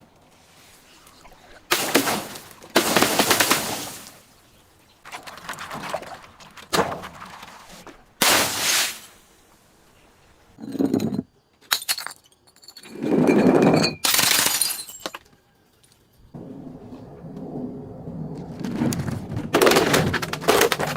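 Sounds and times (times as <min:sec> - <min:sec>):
glass bottles smashing: 0:01.7 - 0:04.2, 0:08.2 - 0:09.1, 0:13.7 - 0:15.2.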